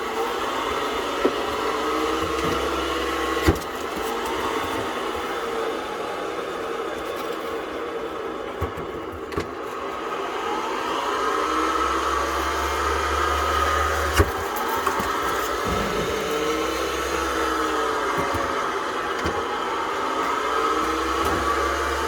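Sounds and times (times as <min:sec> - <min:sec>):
ball machine motors whirring: 0:00.0 - 0:22.0
sharp knock: 0:15.6 - 0:17.3.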